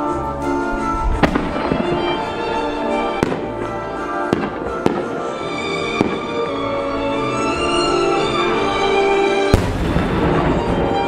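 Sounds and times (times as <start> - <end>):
music with sustained notes: 0.0 - 11.0
fireworks bangs: 1.0 - 6.6, 9.4 - 11.0.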